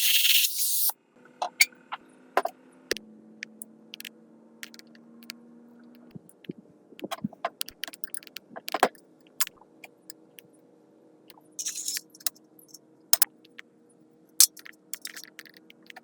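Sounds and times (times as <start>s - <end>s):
metal parts and tools clinking: 11.6s - 12.4s, 14.4s - 15.5s.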